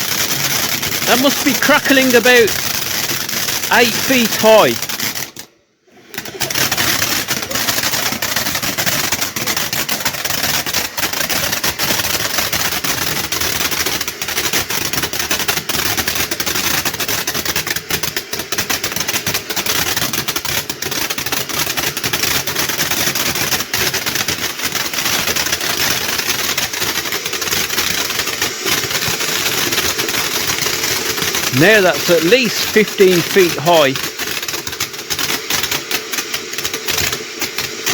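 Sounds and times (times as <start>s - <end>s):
firework fountain crackling: 0.0s - 37.9s
hiss of burning spray: 1.0s - 4.8s, 25.4s - 34.2s.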